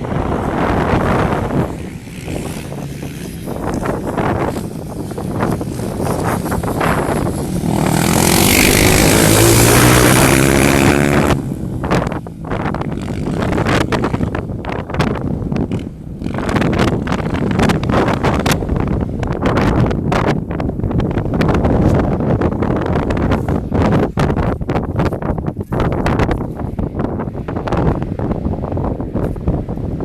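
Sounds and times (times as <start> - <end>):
motorcycle engine revving: 0.0 - 19.6
wind noise on microphone: 0.0 - 30.0.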